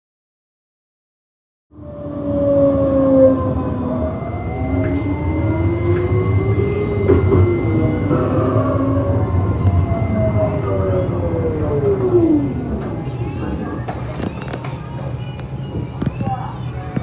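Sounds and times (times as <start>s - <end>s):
tram rumbling on rails: 1.8s - 17.0s
electric drive whine: 4.1s - 12.0s.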